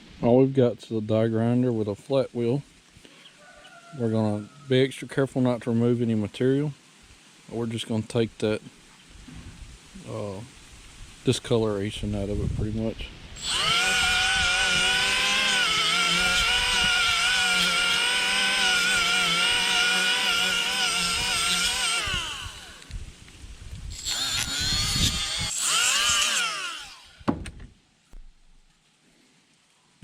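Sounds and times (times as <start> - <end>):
die grinder whining: 13.4 - 23.0, 23.9 - 27.3.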